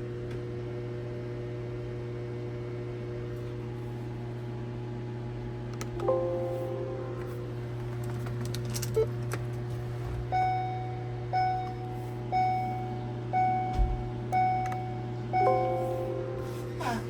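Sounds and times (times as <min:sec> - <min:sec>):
steady low hum: 0:05.2 - 0:17.0
electronic chime dinging: 0:14.4 - 0:17.0.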